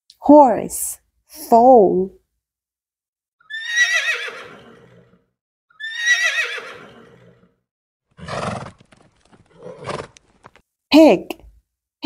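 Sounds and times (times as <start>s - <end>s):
horse whinnying: 3.4s - 10.2s.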